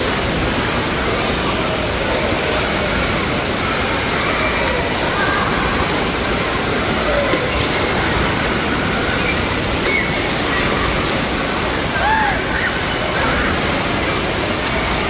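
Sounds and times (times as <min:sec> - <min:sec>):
rushing water: 0:00.0 - 0:15.0
distant children shouting: 0:07.0 - 0:14.0.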